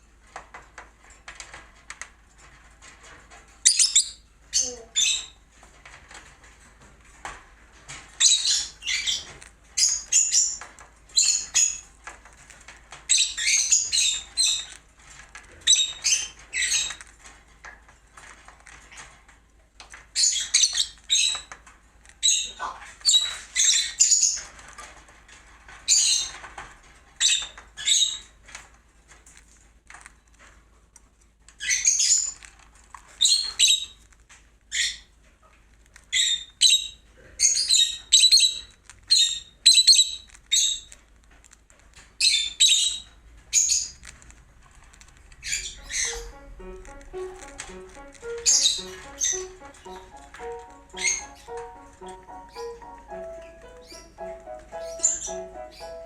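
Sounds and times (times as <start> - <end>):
cockatiel chirping: 3.7 - 5.4, 8.2 - 11.9, 13.1 - 14.8, 36.2 - 40.9, 45.4 - 56.0.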